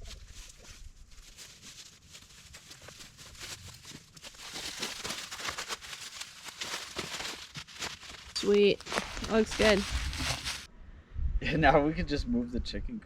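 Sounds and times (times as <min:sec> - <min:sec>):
light rustling and crackling: 0:00.0 - 0:10.7.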